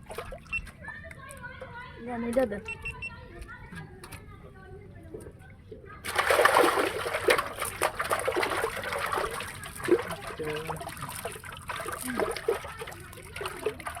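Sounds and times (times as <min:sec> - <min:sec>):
water splashing and trickling: 0:00.0 - 0:01.1, 0:06.0 - 0:14.0.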